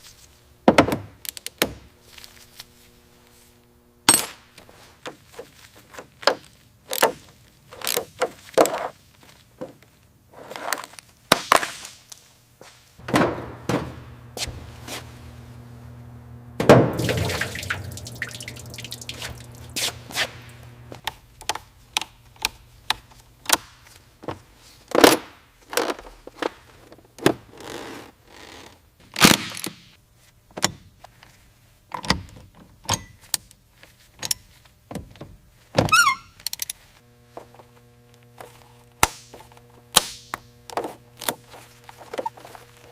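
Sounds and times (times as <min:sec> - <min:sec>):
low steady hum: 0:00.0 - 0:05.0, 0:13.0 - 0:24.2, 0:37.0 - 0:42.9.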